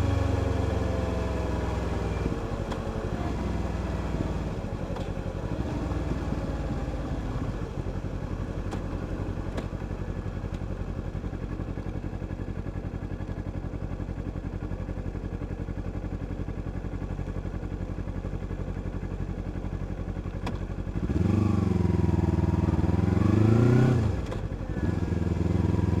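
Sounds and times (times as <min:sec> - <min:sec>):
vehicle engine running: 0:00.0 - 0:26.0
louder engine revving: 0:21.0 - 0:26.0.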